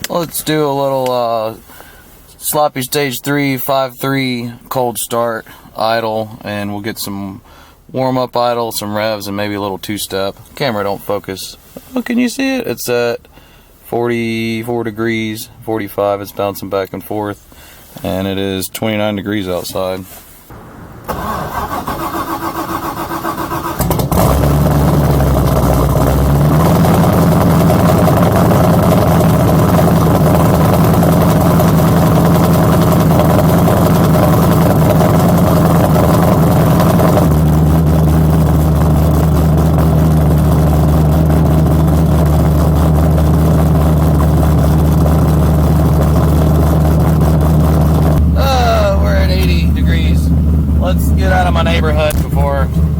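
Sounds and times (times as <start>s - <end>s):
starter motor cranking: 21.1s - 27.7s
engine lumpy idle: 23.8s - 52.9s.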